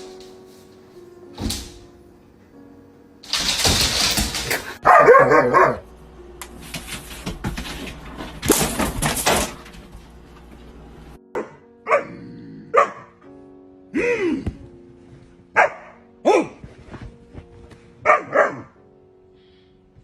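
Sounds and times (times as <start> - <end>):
dog barking: 4.8 - 5.8, 11.4 - 13.2, 15.6 - 16.6, 18.0 - 18.8.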